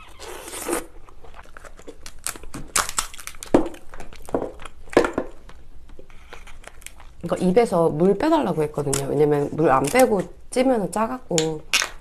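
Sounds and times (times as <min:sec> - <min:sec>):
crab shell crunching and cracking: 0:00.2 - 0:07.2, 0:11.7 - 0:12.0.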